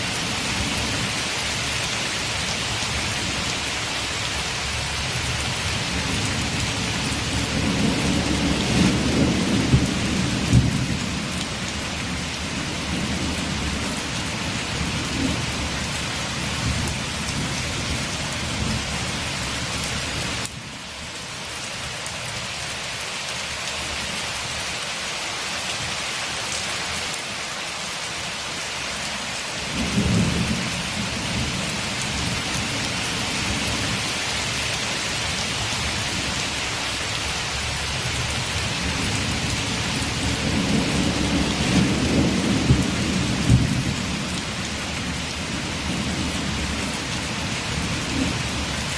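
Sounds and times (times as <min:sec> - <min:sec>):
rain on a window: 0:00.0 - 0:48.9
thunder rumbling: 0:05.6 - 0:19.0, 0:29.7 - 0:34.0, 0:37.6 - 0:48.9.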